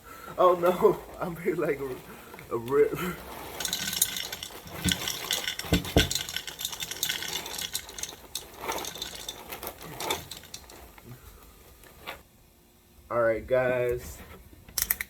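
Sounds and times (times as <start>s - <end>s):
plastic bag crinkling: 0.4s - 12.2s.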